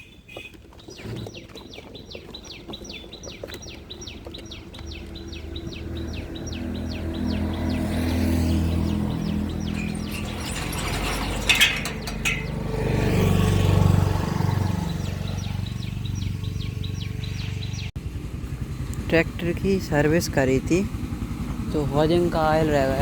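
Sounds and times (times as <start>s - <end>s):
bird chirping: 0.0s - 18.0s
vehicle engine running: 1.0s - 23.0s.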